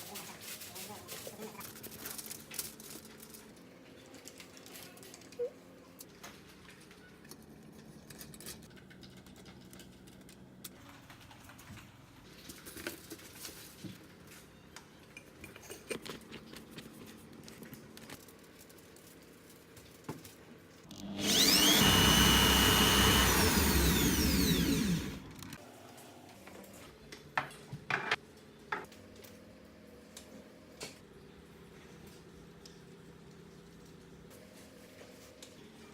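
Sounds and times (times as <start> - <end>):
electric drill whine: 20.9 - 25.6.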